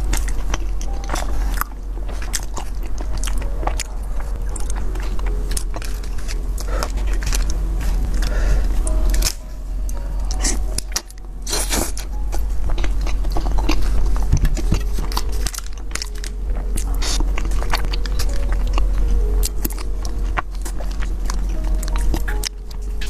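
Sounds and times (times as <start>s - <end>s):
biting and chewing food: 0.0s - 23.0s
low hum: 0.0s - 23.0s
loud crunchy bite: 10.3s - 12.1s, 12.7s - 18.8s.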